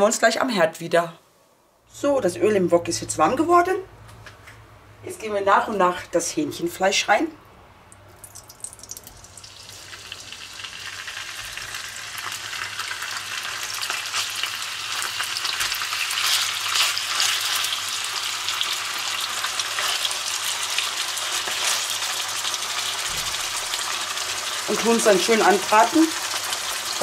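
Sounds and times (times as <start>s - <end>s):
chicken sizzling in hot oil: 8.3s - 27.0s.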